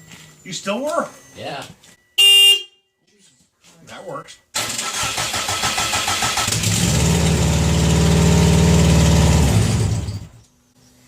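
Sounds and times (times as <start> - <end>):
car engine cranking: 4.6 - 10.4
car engine running and stalling: 4.6 - 10.4.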